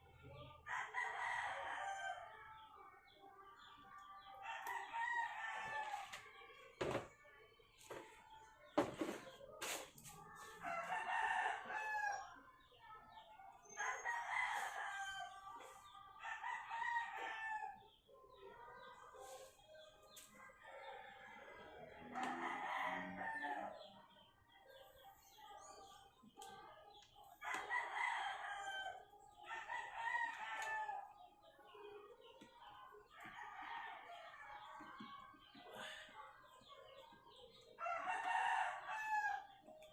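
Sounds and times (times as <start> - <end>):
roosters crowing: 20.9 - 23.9, 37.8 - 39.6.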